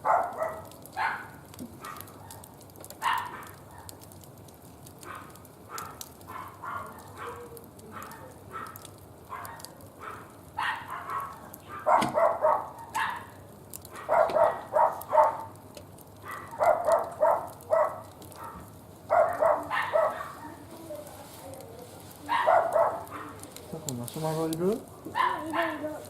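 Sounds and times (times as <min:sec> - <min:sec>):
wood fire crackling: 0:00.0 - 0:26.0
small dog yapping: 0:00.1 - 0:04.0, 0:05.0 - 0:15.5, 0:16.2 - 0:20.6, 0:22.3 - 0:23.5, 0:25.1 - 0:26.0.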